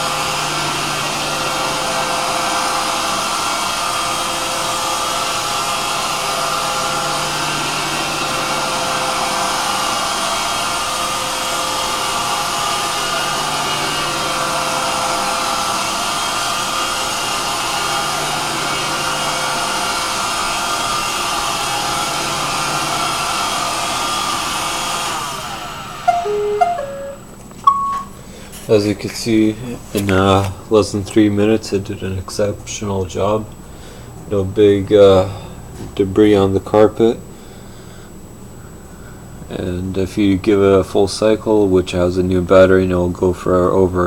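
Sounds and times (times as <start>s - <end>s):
robot vacuum motor and brush whine: 0.0s - 26.4s
short beeps: 26.1s - 28.2s.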